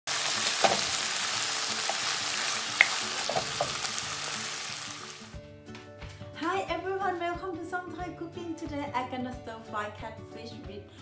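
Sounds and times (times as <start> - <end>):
fish sizzling in a wok: 0.1 - 5.4
spatula knocking and scraping pan: 0.6 - 1.0, 2.8 - 3.9.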